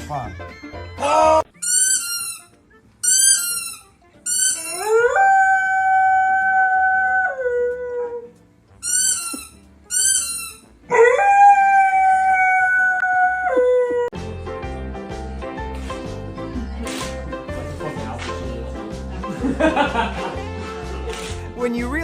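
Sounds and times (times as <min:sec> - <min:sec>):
animal howling: 0:10.9 - 0:14.2.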